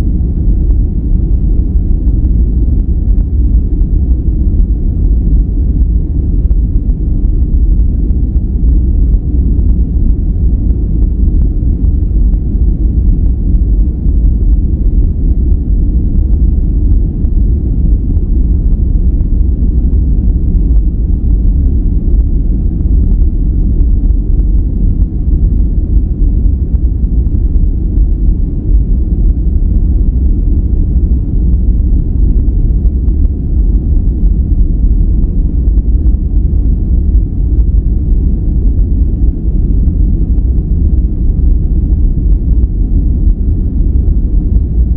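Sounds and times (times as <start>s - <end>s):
deep muffled low rumble noise: 0.0s - 44.9s.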